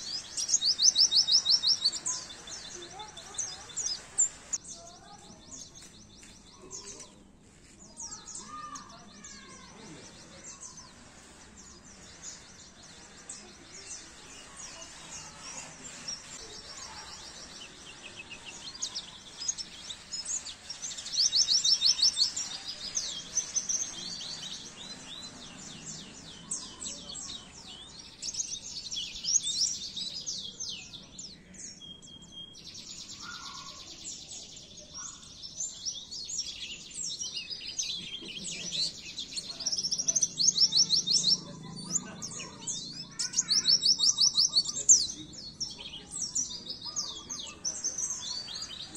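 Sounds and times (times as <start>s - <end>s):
white-eye twittering song: 0.0s - 5.7s, 10.2s - 37.9s.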